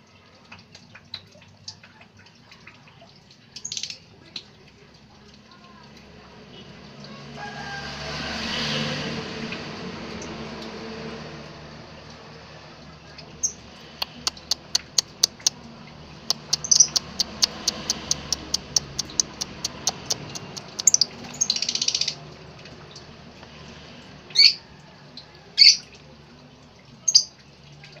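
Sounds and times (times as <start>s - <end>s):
lovebird chirping: 16.3s - 22.2s.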